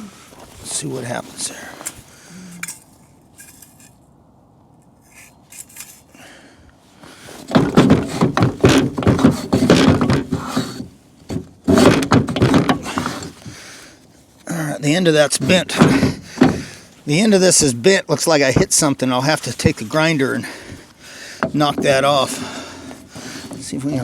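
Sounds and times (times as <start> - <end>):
metal knocking and scraping: 2.6 - 4.0, 7.4 - 13.5, 15.3 - 16.9, 21.4 - 24.0.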